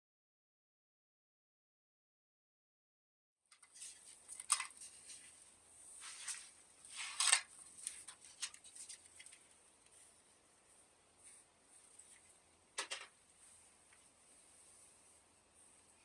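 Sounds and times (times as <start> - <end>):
clicks and scrapes of tools: 3.5 - 5.2.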